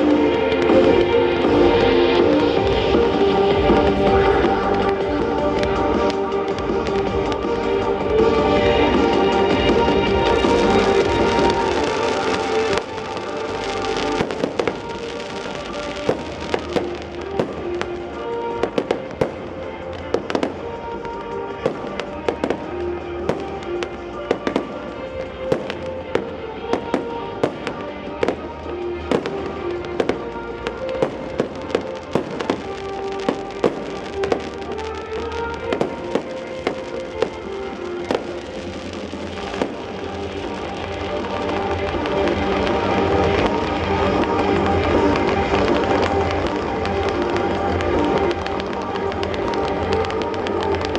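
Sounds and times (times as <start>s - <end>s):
fireworks bangs and crackles: 0.0s - 50.9s
music playing: 0.0s - 50.9s.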